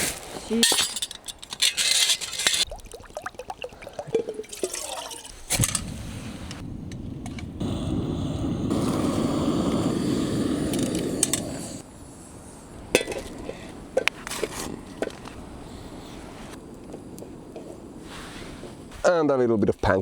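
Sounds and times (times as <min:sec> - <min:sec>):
cups and utensils clinking: 0:00.6 - 0:02.7, 0:03.7 - 0:05.8, 0:12.9 - 0:15.4
steady rushing noise: 0:05.6 - 0:19.2.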